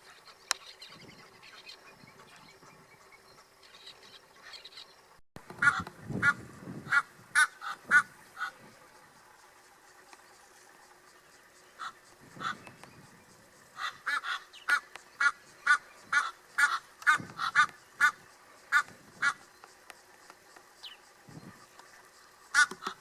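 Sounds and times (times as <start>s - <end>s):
bird harsh calls: 5.6s - 8.8s, 11.6s - 13.1s, 13.7s - 19.6s, 22.3s - 23.0s.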